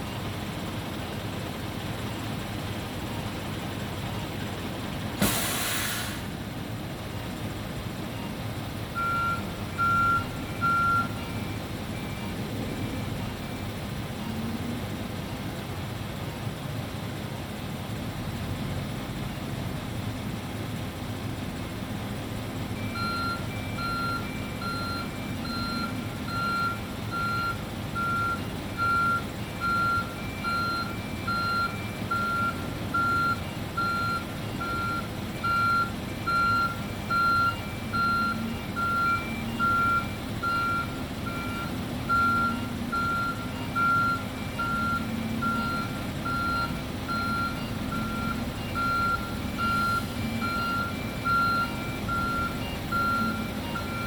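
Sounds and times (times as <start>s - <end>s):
lorry engine running: 0.0s - 54.0s
reversing alarm beeping: 8.1s - 14.5s, 22.7s - 54.0s.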